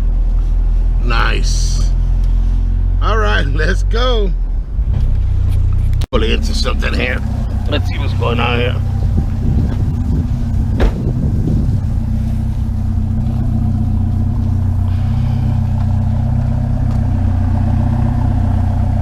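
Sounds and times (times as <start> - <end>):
truck engine running: 4.4 - 19.0.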